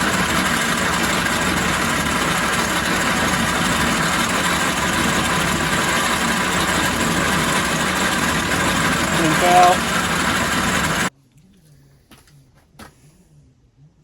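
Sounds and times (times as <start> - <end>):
metal lathe running: 0.0 - 11.1.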